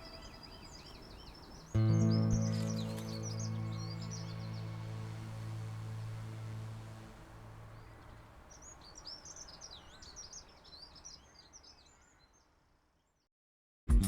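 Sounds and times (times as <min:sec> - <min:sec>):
songbird chirping and twittering: 0:00.0 - 0:13.3
background music: 0:01.8 - 0:07.3.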